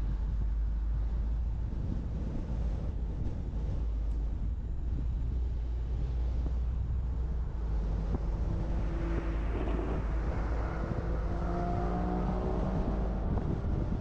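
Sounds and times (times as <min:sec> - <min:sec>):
car road and wind rumble: 0:00.0 - 0:14.0
humming tone: 0:06.4 - 0:14.0.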